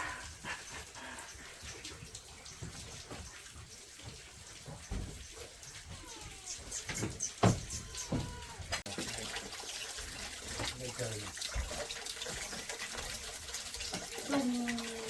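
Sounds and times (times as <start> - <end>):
water running and splashing: 0.0 - 15.0
dull thump: 6.9 - 8.4.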